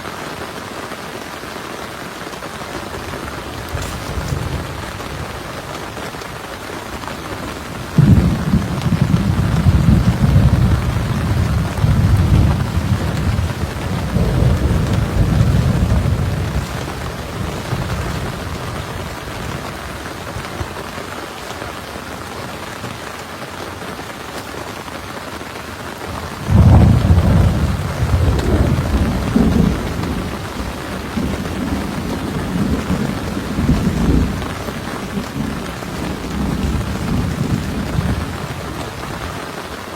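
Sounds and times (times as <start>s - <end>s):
heavy rain falling: 0.0s - 39.9s
thunder rolling: 2.9s - 20.6s, 26.1s - 39.0s.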